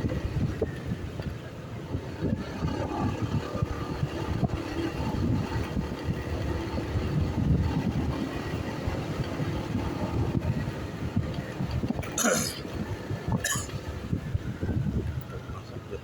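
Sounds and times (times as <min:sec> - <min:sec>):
low rumble of road noise: 0:00.0 - 0:16.0
traffic: 0:00.0 - 0:16.0.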